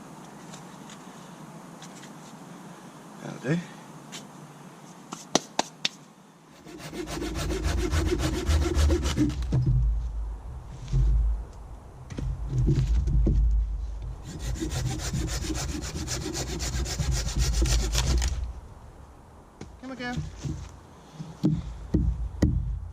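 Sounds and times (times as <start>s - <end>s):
hand saw cutting wood: 6.6s - 9.5s, 14.2s - 18.4s.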